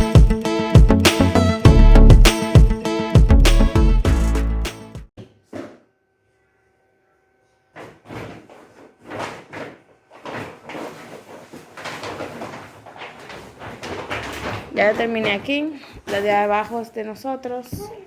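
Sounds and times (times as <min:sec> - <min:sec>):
background music: 0:00.0 - 0:05.1
furniture doors and drawers knocking: 0:07.8 - 0:16.7.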